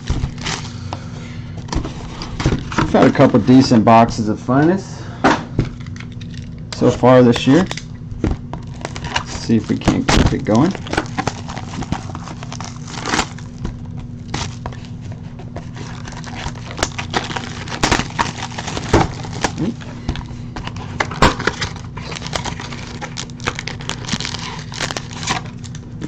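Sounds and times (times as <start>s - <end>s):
shrink wrap and cardboard crackling: 0.0s - 0.8s, 8.5s - 25.8s
steady low hum: 0.0s - 26.0s.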